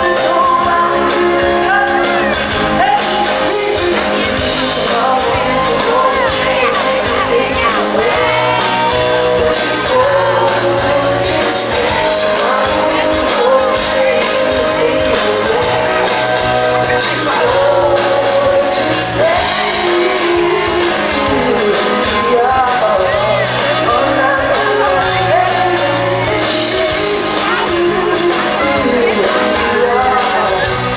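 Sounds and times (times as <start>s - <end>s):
live band playing: 0.0s - 30.9s
man singing: 0.0s - 30.9s
shouts: 1.5s - 3.4s.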